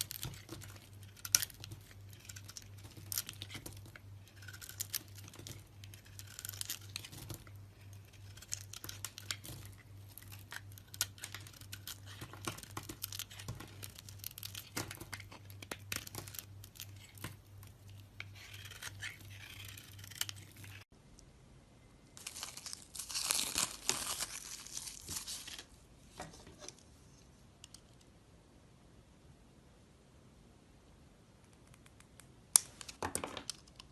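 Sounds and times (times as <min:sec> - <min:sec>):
blade carving soap: 0:00.0 - 0:20.9
low steady hum: 0:00.0 - 0:32.8.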